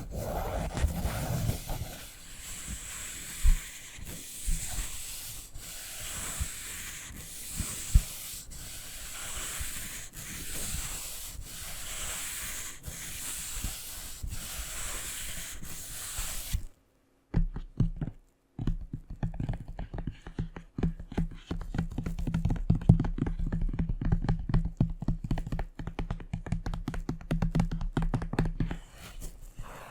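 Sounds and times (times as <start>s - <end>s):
rapid tapping on book: 0.0s - 16.6s, 17.3s - 29.0s
scratching on book cover: 0.0s - 16.7s, 28.6s - 29.9s.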